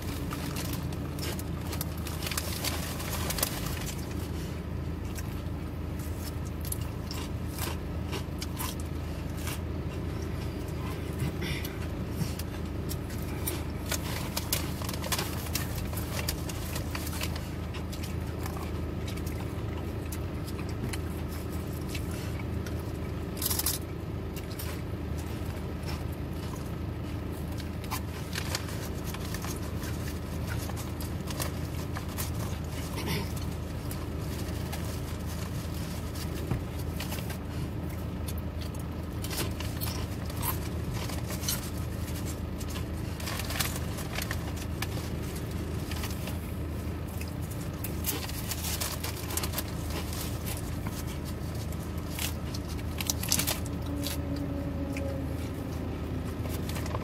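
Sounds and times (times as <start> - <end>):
biting and chewing a sandwich: 0.0 - 57.0
low car cabin hum: 0.0 - 57.0.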